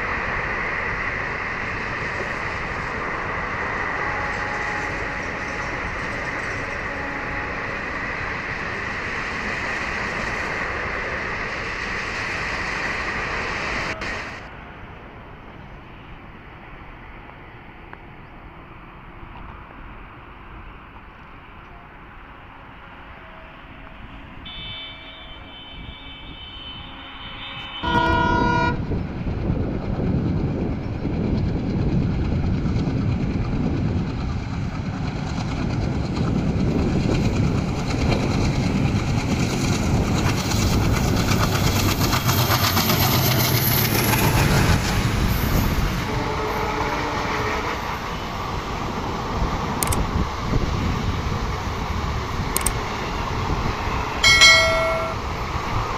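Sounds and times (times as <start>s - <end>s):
train running past: 0.0s - 55.9s
train horn blast: 4.0s - 5.6s, 6.5s - 7.9s, 23.2s - 29.0s, 46.0s - 47.8s.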